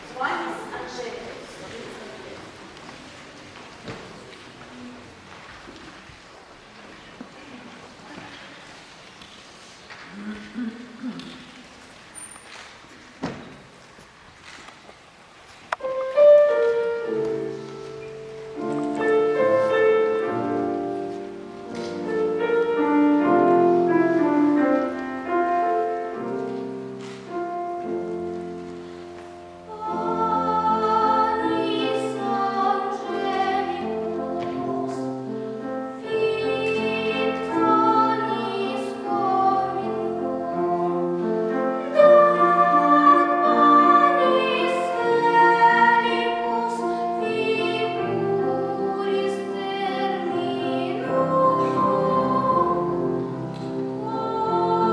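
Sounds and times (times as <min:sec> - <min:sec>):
piano accompaniment: 0:15.7 - 0:54.9
child singing classical style: 0:15.8 - 0:54.9.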